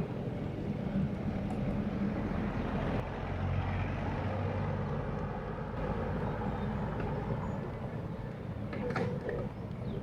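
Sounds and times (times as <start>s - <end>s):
road and wind noise: 0.0s - 10.0s
vehicle engine humming: 5.4s - 8.8s.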